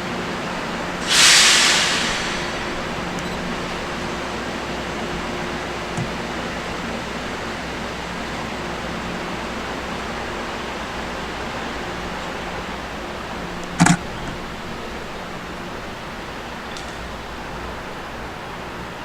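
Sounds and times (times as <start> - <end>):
electric train humming: 0.0 - 19.0
brief sharp sound: 1.0 - 3.4.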